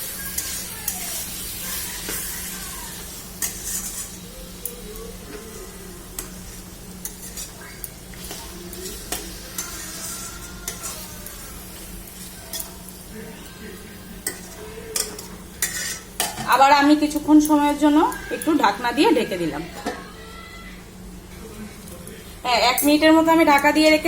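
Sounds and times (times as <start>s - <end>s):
low sizzle: 0.0s - 24.0s
utensil scraping a pan: 0.2s - 4.4s, 5.3s - 12.8s, 14.2s - 16.7s.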